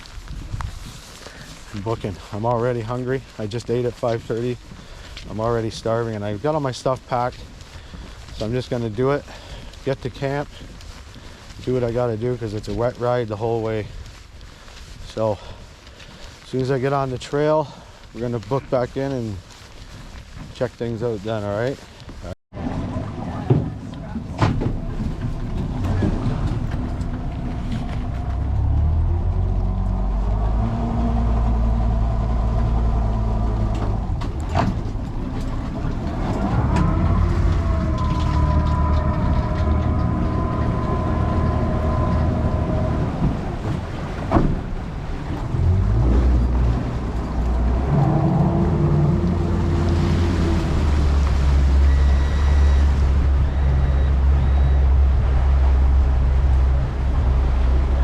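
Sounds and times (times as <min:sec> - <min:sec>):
boat motor running: 0:22.6 - 0:58.0.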